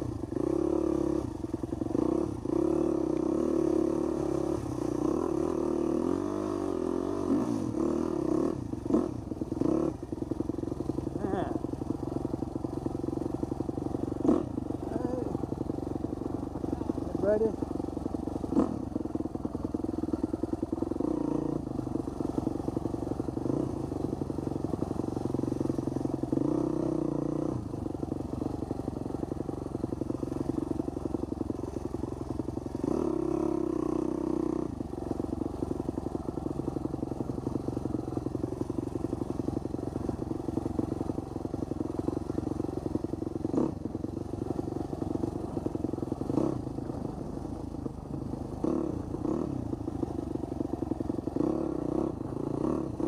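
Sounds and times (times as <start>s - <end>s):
dirt bike engine running: 0.0s - 53.0s.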